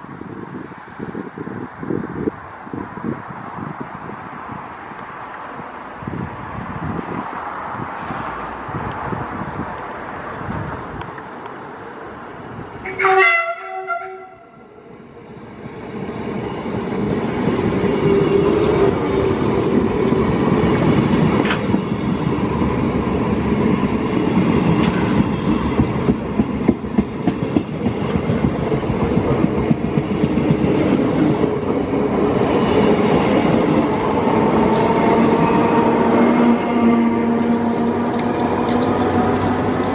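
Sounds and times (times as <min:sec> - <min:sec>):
train running noise: 0:00.0 - 0:39.9
train horn blast: 0:12.8 - 0:14.6, 0:34.7 - 0:38.2
wheels clicking over rail joints: 0:16.0 - 0:35.9, 0:37.3 - 0:39.9.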